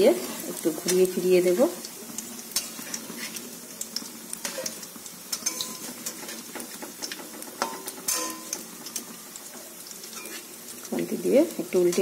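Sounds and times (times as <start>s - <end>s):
food sizzling in oil: 0.0s - 12.0s
spatula scraping and clicking on pan: 2.2s - 10.9s, 11.8s - 12.0s.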